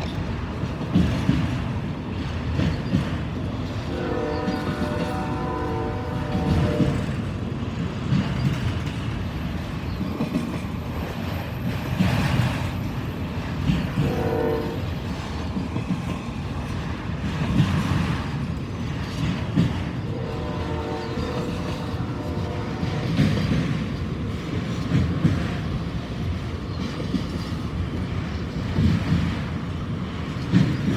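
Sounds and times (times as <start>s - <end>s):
freight train rolling past: 0.0s - 30.9s
locomotive horn: 3.9s - 7.2s, 14.0s - 14.9s, 20.1s - 23.4s.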